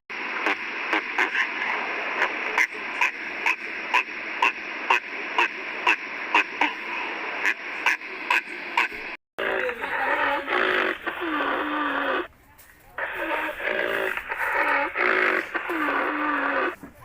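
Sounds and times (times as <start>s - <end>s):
steady hiss: 0.1s - 17.0s
animal calling in sharp notes: 9.4s - 12.3s, 13.1s - 16.8s.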